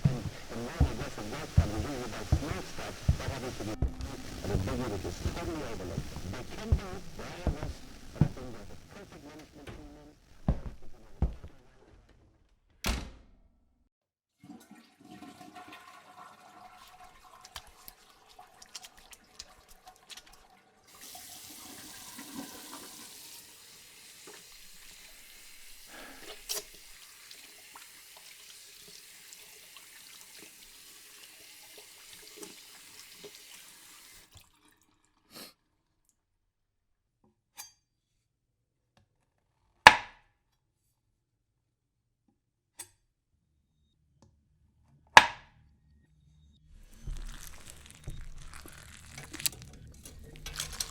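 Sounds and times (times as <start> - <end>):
tap water running: 0.0 - 11.6, 14.4 - 35.2, 46.8 - 50.9.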